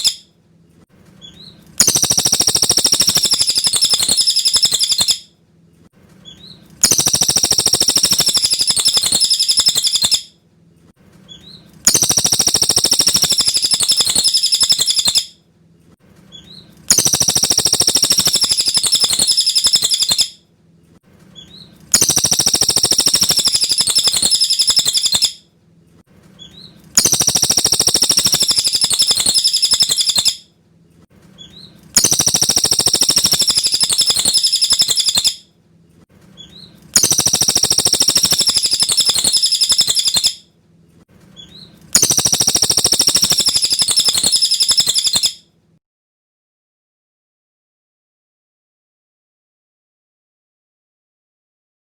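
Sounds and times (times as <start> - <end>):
bird rapid high chattering song: 0.0 - 0.2, 1.3 - 5.2, 6.3 - 10.3, 11.3 - 15.3, 16.4 - 20.3, 21.4 - 25.4, 26.4 - 30.4, 31.4 - 35.4, 36.4 - 40.4, 41.4 - 45.4.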